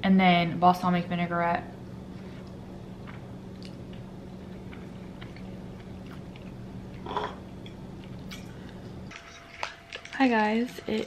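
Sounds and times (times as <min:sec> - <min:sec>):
steady low hum: 0:00.0 - 0:11.0
person chewing food: 0:02.4 - 0:10.2.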